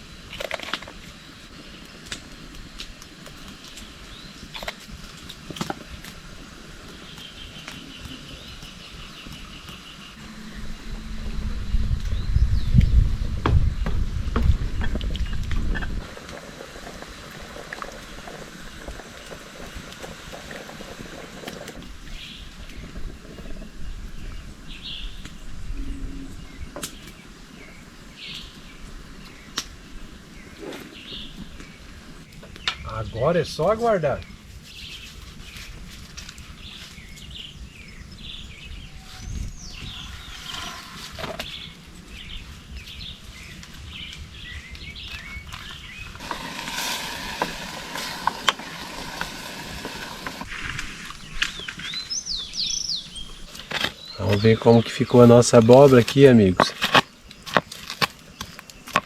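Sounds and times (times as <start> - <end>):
campfire crackling: 0.0 - 59.0
outdoor background noise: 0.0 - 59.0
sharp fire pops: 0.2 - 9.8, 12.0 - 23.7, 26.8 - 33.0, 41.0 - 54.5
low rumble: 10.1 - 19.7, 21.9 - 26.8
bird calls: 21.2 - 35.8, 36.5 - 59.0
bird chirps: 51.2 - 55.3.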